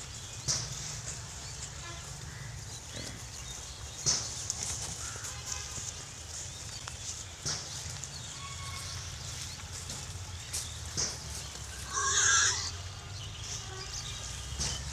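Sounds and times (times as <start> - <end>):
pig squealing: 11.8 - 12.8.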